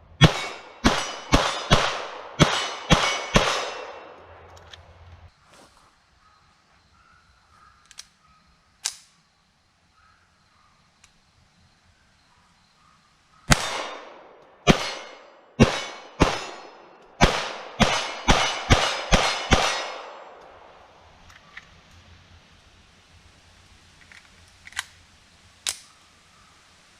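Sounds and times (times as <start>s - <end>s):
pistol shots with echo: 0.2s - 4.5s, 13.5s - 20.7s
sharp crack: 0.2s - 4.8s, 8.8s - 9.2s, 13.5s - 22.0s, 25.6s - 25.9s
faint clicks: 11.0s - 11.2s.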